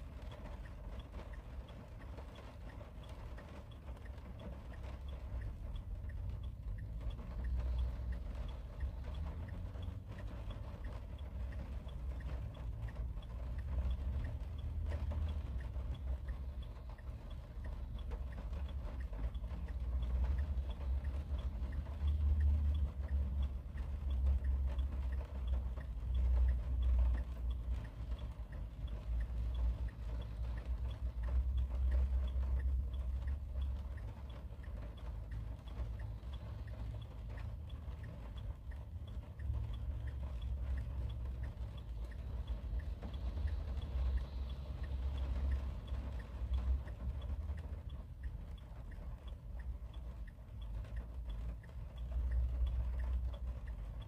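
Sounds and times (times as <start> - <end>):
rain tapping on car roof: 0.0 - 54.0.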